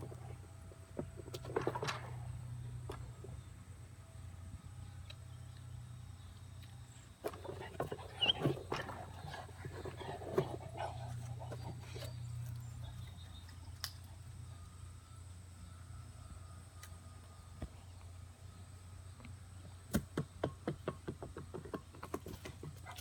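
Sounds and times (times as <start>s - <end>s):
dog growling in play: 7.4s - 12.4s.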